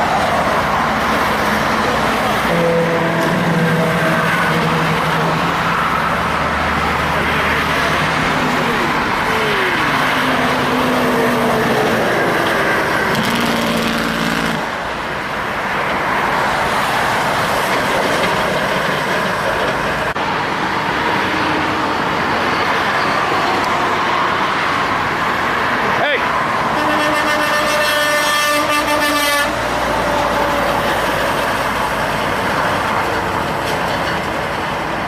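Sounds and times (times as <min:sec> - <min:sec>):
engine drone: 0:00.0 - 0:15.0
heavy road traffic: 0:00.0 - 0:35.0
trucks passing close by: 0:00.0 - 0:35.0.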